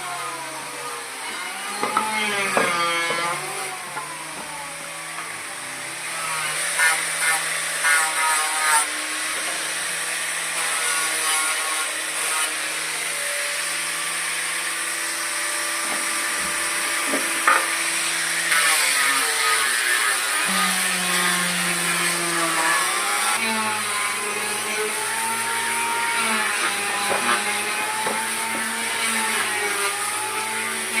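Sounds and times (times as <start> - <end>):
power tool running on wood: 0.0 - 31.0.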